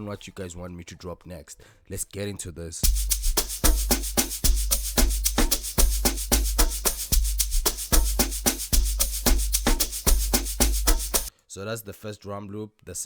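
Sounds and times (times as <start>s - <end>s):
shakers and sharp percussion: 2.8s - 11.3s.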